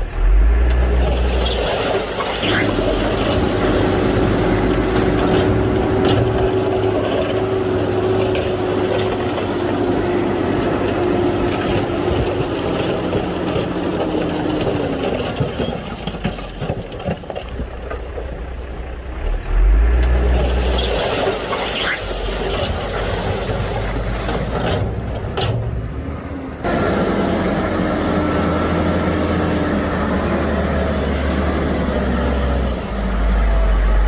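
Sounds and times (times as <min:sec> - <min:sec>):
bulldozer diesel engine running: 0:00.0 - 0:34.0.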